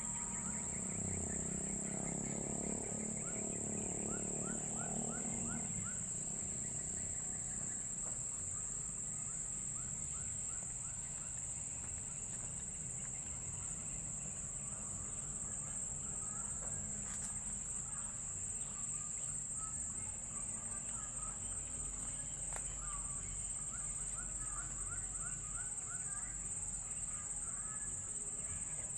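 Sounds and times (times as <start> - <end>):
insects droning: 0.0 - 28.9.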